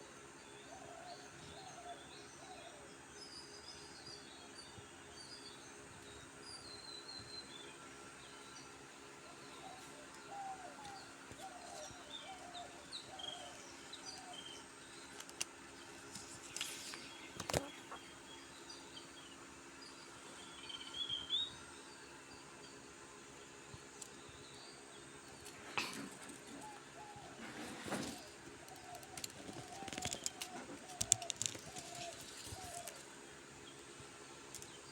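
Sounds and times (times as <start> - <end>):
faint steady hum: 0.0 - 34.9
birds chirping: 8.3 - 34.9
low warbling bird calls: 26.4 - 33.0.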